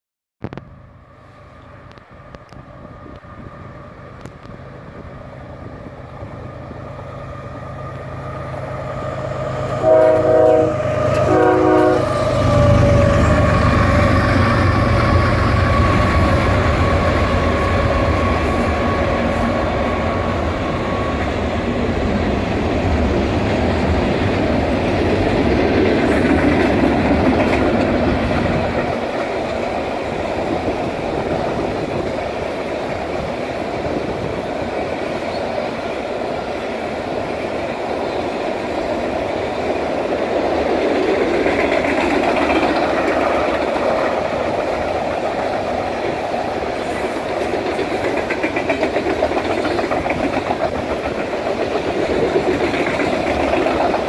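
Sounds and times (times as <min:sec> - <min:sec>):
diesel locomotive rumble: 0:00.5 - 0:54.0
train horn blasts: 0:09.6 - 0:14.0
train wheels clatter: 0:09.8 - 0:35.6, 0:38.8 - 0:54.0.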